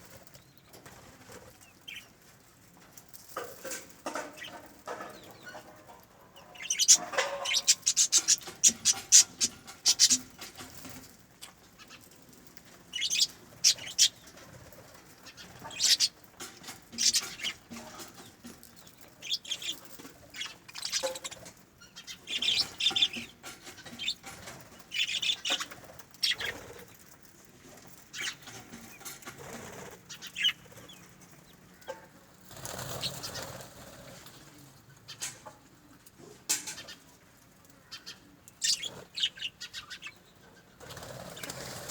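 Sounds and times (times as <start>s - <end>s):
birds fluttering: 0.0s - 41.9s
birds calling: 4.0s - 11.1s, 12.9s - 14.5s, 15.1s - 27.3s, 27.9s - 33.8s, 36.5s - 41.8s.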